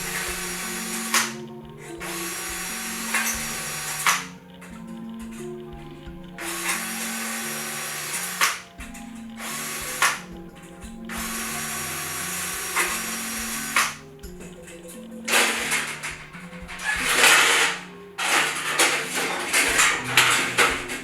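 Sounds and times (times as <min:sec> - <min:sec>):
sharp click of drill stopping: 0:00.0 - 0:01.4, 0:02.0 - 0:04.3, 0:06.4 - 0:08.7, 0:09.4 - 0:10.3, 0:11.1 - 0:14.0
background music: 0:00.0 - 0:21.0
power drill running: 0:00.0 - 0:21.0.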